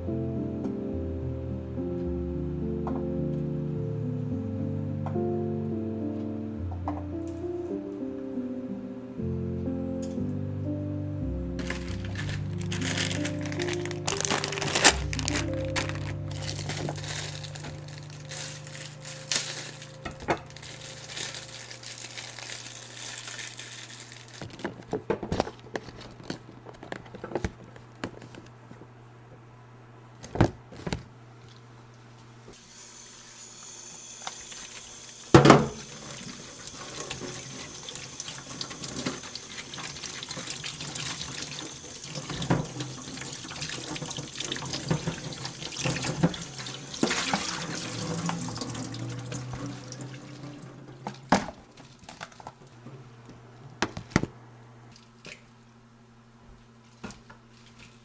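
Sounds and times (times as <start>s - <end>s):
tap water running into sink: 34.3s - 52.4s.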